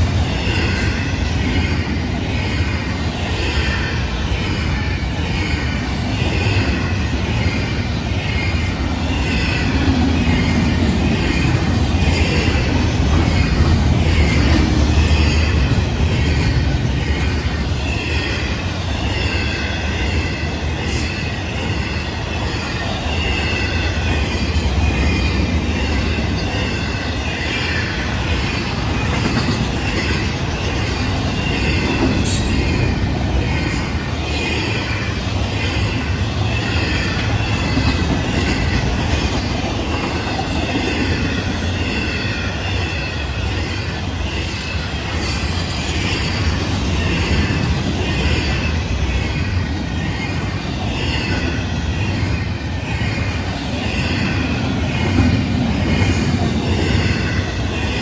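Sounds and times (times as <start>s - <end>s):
steel wheels rumbling on rails: 0.0s - 58.0s.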